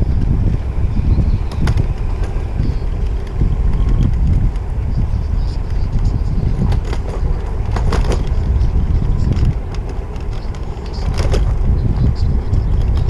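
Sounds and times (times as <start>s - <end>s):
street traffic: 0.0s - 13.0s
wind buffeting microphone: 0.0s - 13.0s
sharp clicks or rattles: 5.6s - 13.0s.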